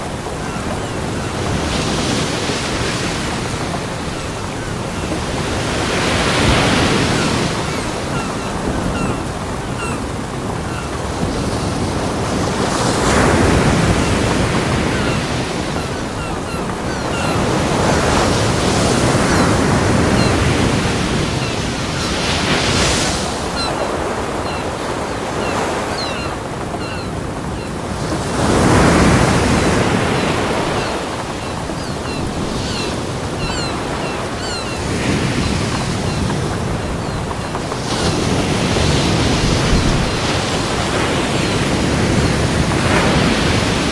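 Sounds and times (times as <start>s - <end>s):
ocean waves breaking on beach: 0.0s - 43.9s.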